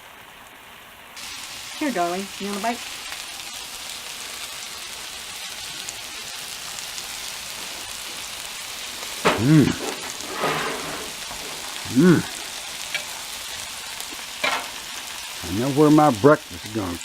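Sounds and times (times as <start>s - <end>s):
food sizzling on a griddle: 0.0s - 17.0s
person making short vocal sounds: 9.3s - 10.0s, 11.8s - 12.4s.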